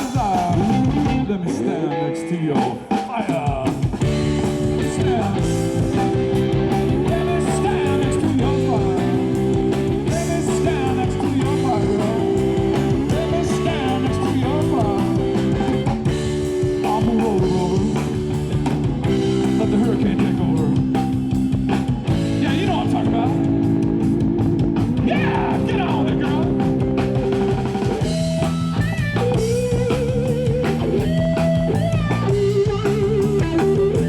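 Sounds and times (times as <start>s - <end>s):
electric guitar chords: 0.0s - 3.0s, 3.8s - 34.0s
wavering guitar lead line: 0.0s - 3.0s, 3.9s - 34.0s
person singing: 4.7s - 15.9s, 16.7s - 18.3s, 25.0s - 26.6s.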